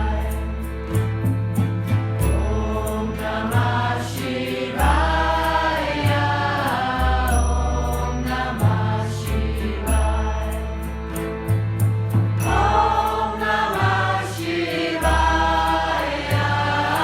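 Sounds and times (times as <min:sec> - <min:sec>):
bass line: 0:00.0 - 0:17.0
high percussion ticks: 0:00.0 - 0:17.0
group chanting mantra: 0:02.5 - 0:10.6, 0:12.4 - 0:17.0.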